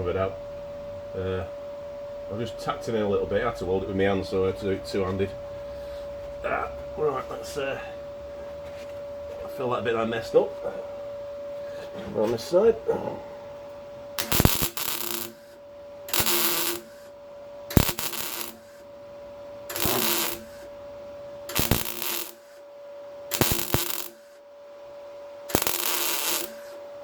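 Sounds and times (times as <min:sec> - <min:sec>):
steady hum: 0:00.0 - 0:27.0
welder crackling bursts: 0:14.2 - 0:18.9, 0:19.6 - 0:20.8, 0:21.5 - 0:22.7, 0:23.3 - 0:24.4, 0:25.4 - 0:26.8.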